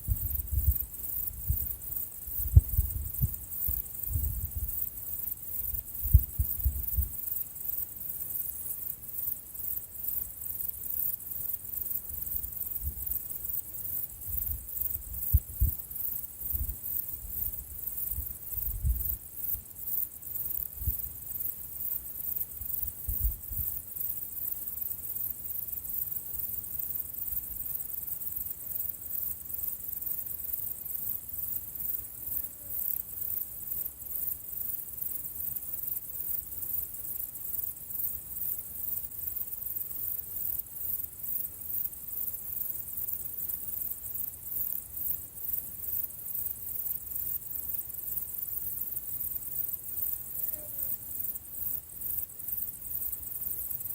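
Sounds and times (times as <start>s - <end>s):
soft low thumps: 0.0s - 1.8s, 2.4s - 4.8s, 6.0s - 7.2s, 14.4s - 15.8s, 23.1s - 23.4s
faint low rumble: 0.0s - 4.8s, 5.8s - 7.2s, 14.2s - 15.8s
insects chirring: 0.0s - 53.9s.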